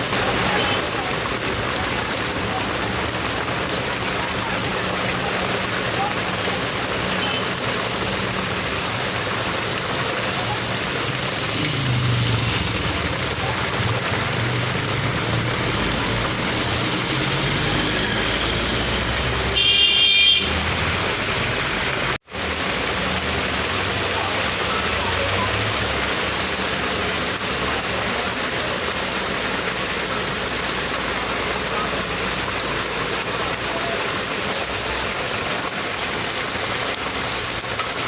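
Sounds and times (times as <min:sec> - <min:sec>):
rain hissing: 0:00.0 - 0:38.0
motor vehicle passing: 0:10.9 - 0:19.6.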